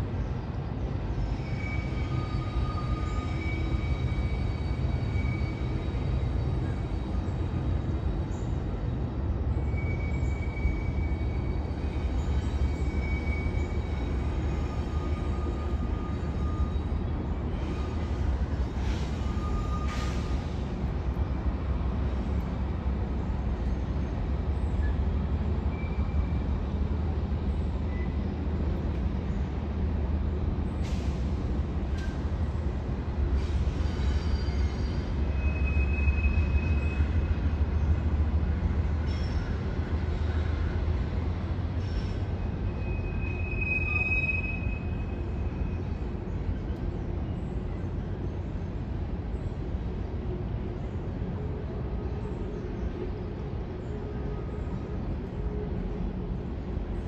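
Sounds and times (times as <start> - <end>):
train wheels rumbling on rail: 0.0 - 57.0
high-pitched wheel squeals: 1.2 - 7.2, 9.6 - 18.2, 19.0 - 20.4, 33.8 - 37.3, 41.9 - 45.7
train clanks: 30.7 - 47.3.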